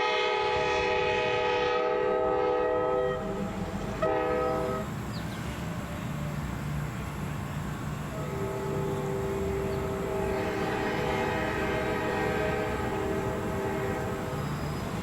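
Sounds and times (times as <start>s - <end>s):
locomotive air horn chord: 0.0s - 5.0s, 8.1s - 15.0s
low rumble of train: 0.0s - 15.0s.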